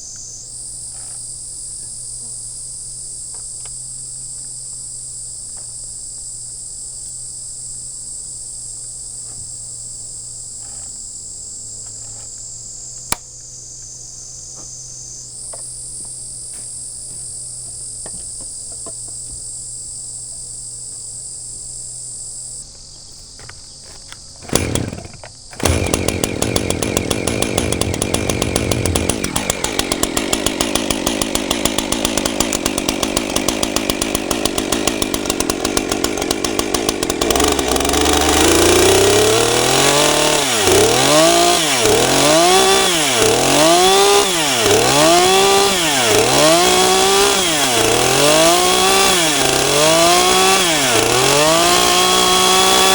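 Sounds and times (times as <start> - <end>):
high-pitched insect chorus: 0.0 - 26.7
chainsaw engine running: 0.0 - 52.9.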